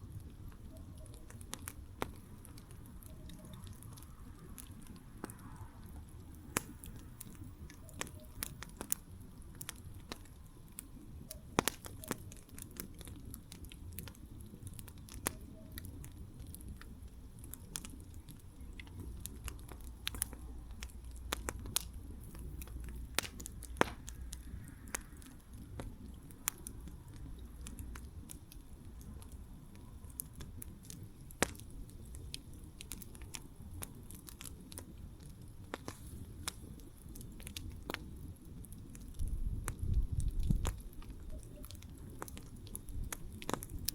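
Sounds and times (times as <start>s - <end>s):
campfire crackling: 0.0s - 43.9s
low steady rumble: 16.0s - 34.1s.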